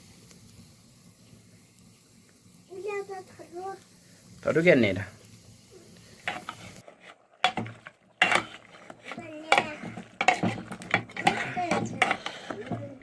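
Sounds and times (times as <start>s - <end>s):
sharp knocks and clatters: 7.4s - 13.0s.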